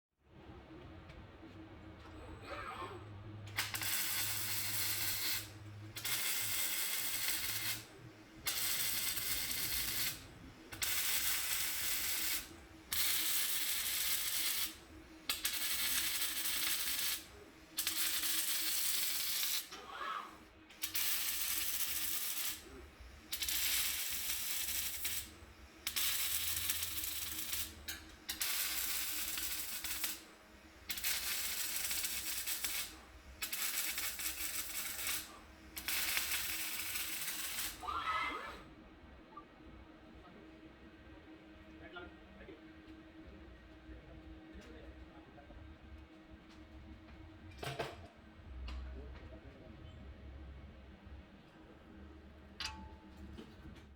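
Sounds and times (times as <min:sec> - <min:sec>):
steady low hum: 0:00.2 - 0:38.0
welding arc crackling: 0:03.5 - 0:19.8, 0:20.7 - 0:37.9.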